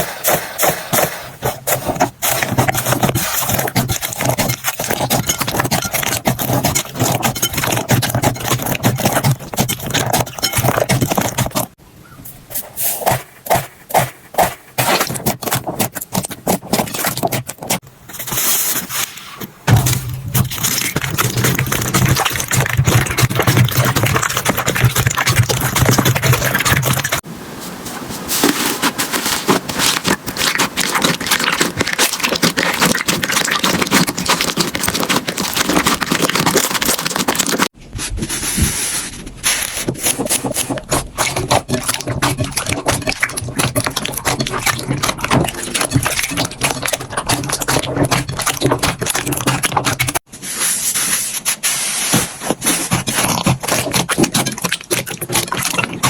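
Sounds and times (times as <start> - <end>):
slime crackling and popping: 29.2 - 37.7.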